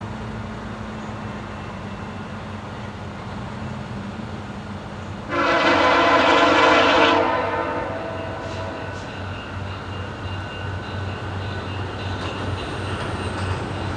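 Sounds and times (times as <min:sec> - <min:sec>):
train rumbling: 0:00.0 - 0:13.9
locomotive air horn blast: 0:05.3 - 0:09.2.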